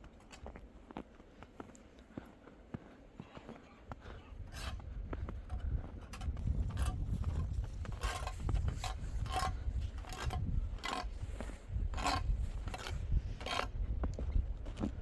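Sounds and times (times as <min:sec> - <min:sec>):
rasping scraping strokes: 0:07.9 - 0:13.7.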